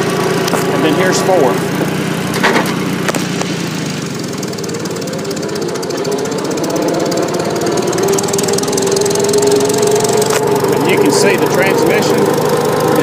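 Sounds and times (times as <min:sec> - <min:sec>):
tractor engine running: 0:00.0 - 0:13.0
transmission gear noise: 0:00.0 - 0:13.0.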